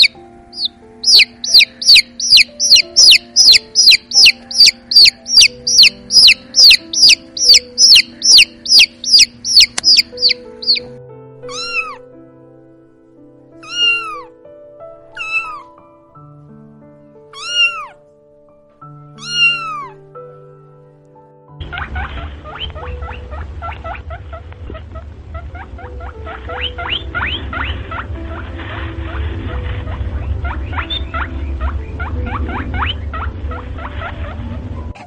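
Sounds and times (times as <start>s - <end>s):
kitten meowing: 0.0s - 10.8s, 11.4s - 12.0s, 13.6s - 14.3s, 15.1s - 15.8s, 17.4s - 18.0s, 19.2s - 20.0s
baby chicks peeping: 0.0s - 10.9s, 21.6s - 35.0s
soft background music: 0.0s - 35.0s.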